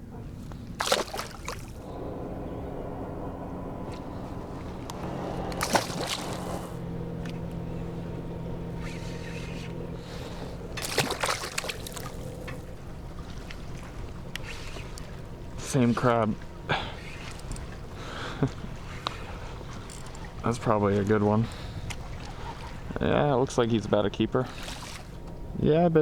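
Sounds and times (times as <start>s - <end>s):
motor humming on water: 0.0s - 26.0s
water splashing and knocking: 0.5s - 2.0s, 3.8s - 7.7s, 10.1s - 23.0s, 24.5s - 25.4s.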